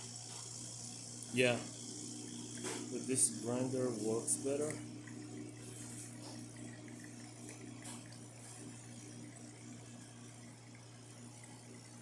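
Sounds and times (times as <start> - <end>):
espresso machine pump humming: 0.0 - 12.0.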